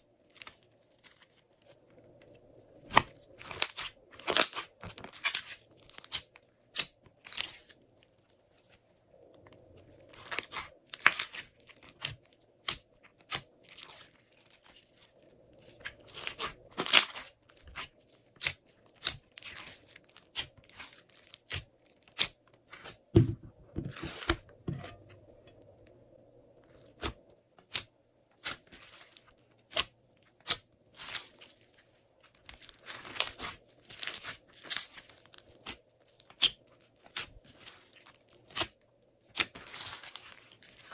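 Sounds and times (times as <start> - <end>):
slime squelching thumps: 23.2 - 25.2.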